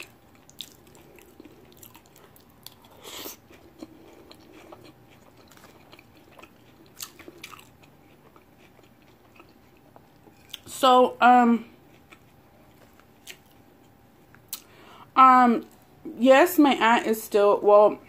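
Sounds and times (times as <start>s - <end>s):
chewing and crunching: 0.0s - 10.8s, 11.6s - 14.7s.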